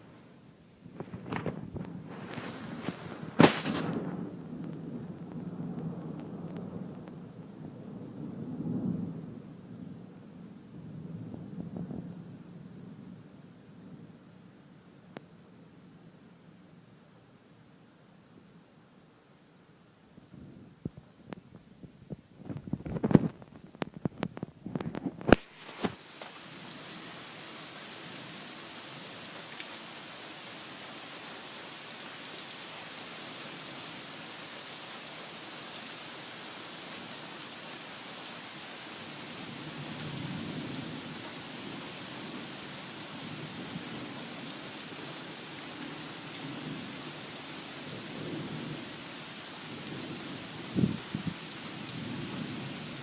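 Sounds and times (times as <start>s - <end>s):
steady rain: 0.0s - 53.0s
rolling thunder: 0.9s - 10.1s, 10.8s - 12.6s
sharp cracks and thumps: 1.0s - 4.1s, 22.4s - 26.3s.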